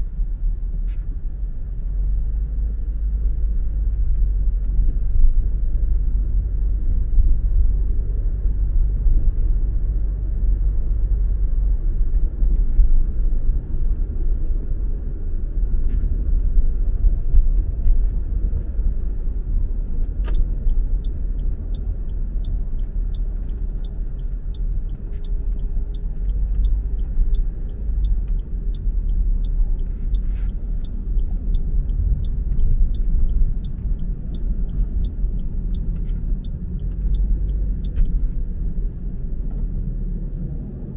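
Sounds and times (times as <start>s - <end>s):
car engine and road noise: 0.0s - 40.9s
turn signal ticking: 7.2s - 40.9s
turn signal click: 20.0s - 38.8s.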